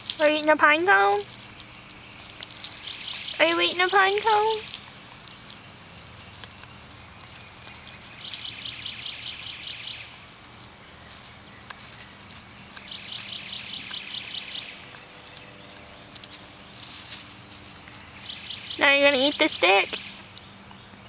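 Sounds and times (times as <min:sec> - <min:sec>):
dog gnawing pine cone: 0:00.0 - 0:21.0
bird trilling: 0:01.2 - 0:10.2, 0:11.0 - 0:16.9, 0:17.8 - 0:20.6.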